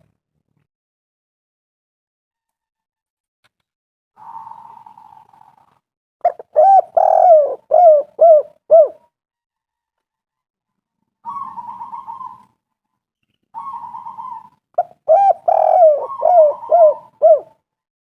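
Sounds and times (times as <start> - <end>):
dove cooing: 6.2 - 9.0, 11.2 - 12.5, 13.6 - 17.6.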